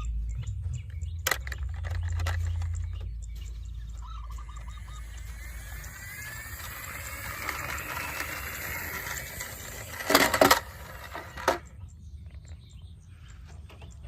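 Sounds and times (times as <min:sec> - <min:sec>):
faint rising whine: 0:02.6 - 0:11.7
metal toy cars clinking: 0:05.2 - 0:11.8.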